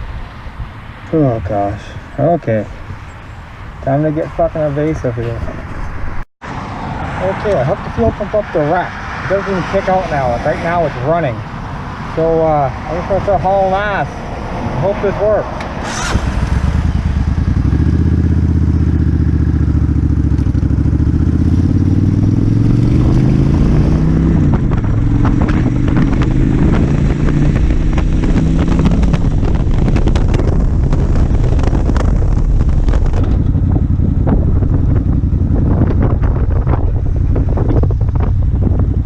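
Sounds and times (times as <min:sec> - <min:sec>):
motorcycle engine accelerating: 0:15.7 - 0:39.0
wind buffeting microphone: 0:20.6 - 0:39.0.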